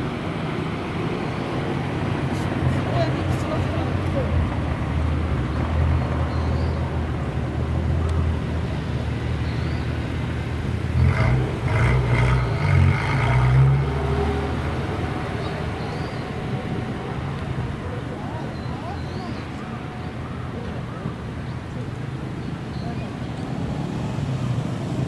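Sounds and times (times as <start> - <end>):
car engine driving past: 10.3 - 16.5.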